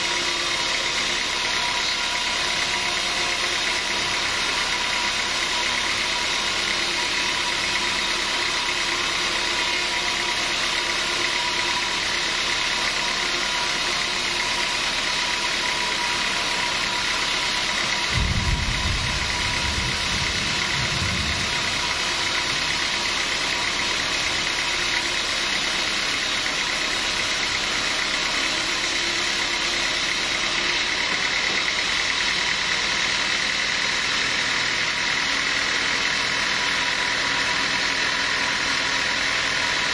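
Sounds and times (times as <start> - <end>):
sawmill machinery drone and whine: 0.0 - 39.9
deep rumble: 18.1 - 23.0.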